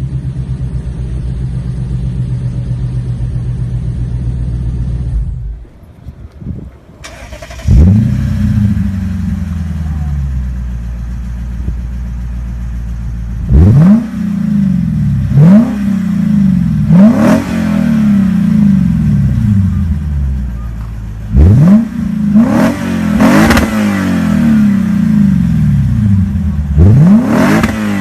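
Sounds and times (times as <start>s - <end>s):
car engine starting and idling: 0.0s - 28.0s
car engine revving: 7.0s - 10.6s, 13.3s - 28.0s.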